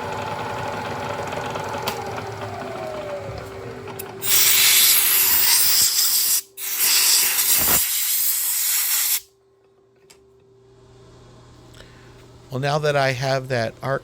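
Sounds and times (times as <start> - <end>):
compressed air blow gun hissing: 4.2 - 9.2.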